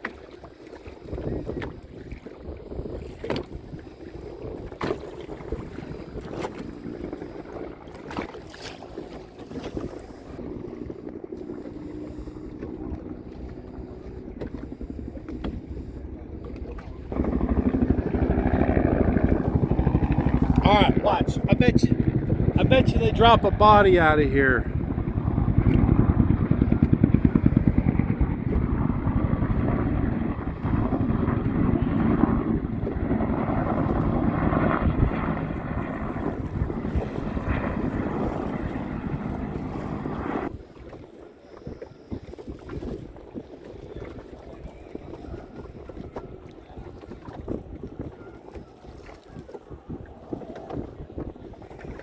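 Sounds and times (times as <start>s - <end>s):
wind noise on microphone: 0.1s - 52.0s
aircraft engines droning: 10.1s - 40.5s.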